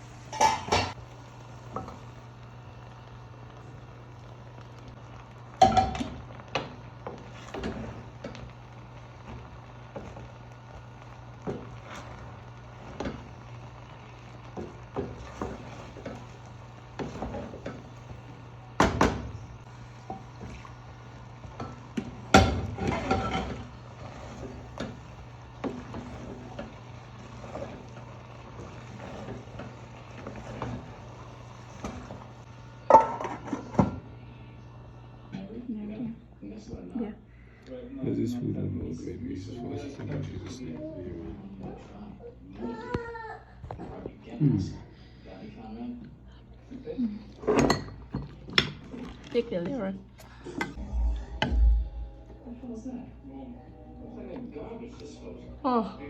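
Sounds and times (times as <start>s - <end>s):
utensils and dishes clattering: 0.3s - 1.0s, 22.3s - 25.0s
steady low hum: 50.2s - 55.6s.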